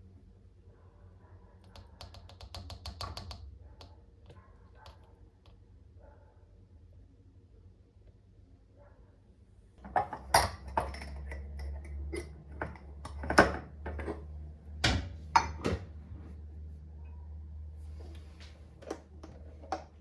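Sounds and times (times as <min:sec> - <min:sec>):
low steady hum: 0:03.4 - 0:20.0
dishes and utensils clinking: 0:09.8 - 0:14.3.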